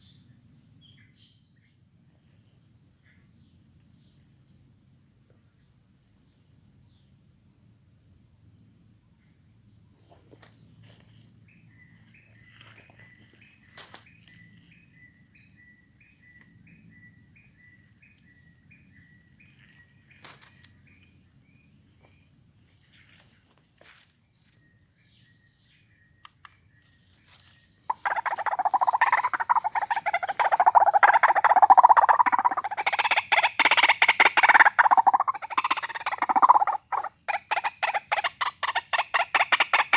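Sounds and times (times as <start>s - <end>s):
cricket chirps: 0.0s - 39.9s
high insect drone: 0.0s - 39.9s
birds croaking harshly: 27.7s - 39.9s
repeated chirping notes: 27.9s - 37.1s.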